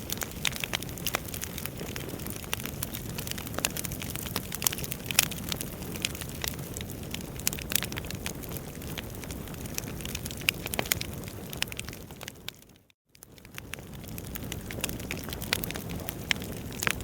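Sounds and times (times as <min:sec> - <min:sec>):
burning logs crackling and popping: 0:00.0 - 0:17.0
low rush of flames: 0:00.0 - 0:17.0.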